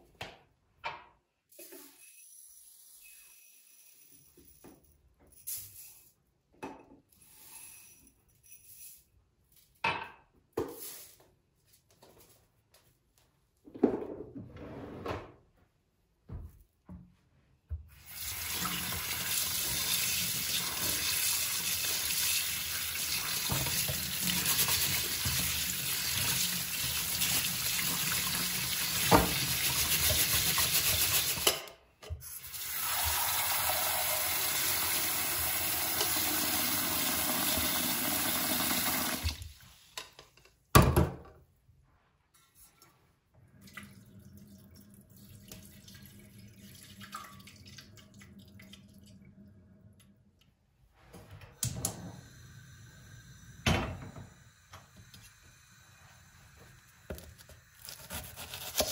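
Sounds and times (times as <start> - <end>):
tap running into sink: 27.7 - 31.5.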